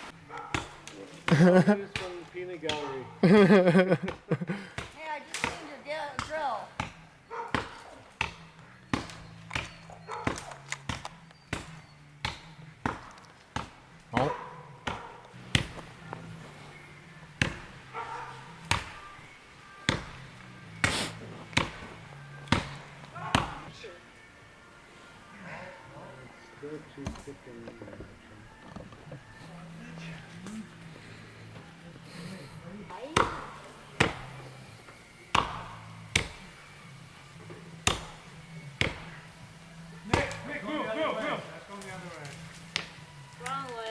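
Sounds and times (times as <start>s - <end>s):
axe chopping into tree trunk: 0.4s - 3.0s, 4.8s - 16.2s, 17.4s - 19.1s, 19.8s - 23.7s, 33.0s - 34.6s, 35.3s - 36.7s, 37.4s - 39.3s, 40.0s - 40.5s, 41.9s - 43.0s.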